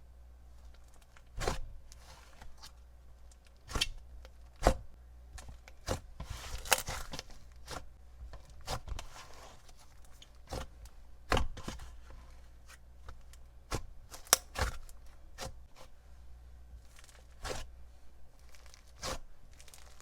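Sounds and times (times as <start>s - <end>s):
slime tearing softly: 18.4s - 20.0s.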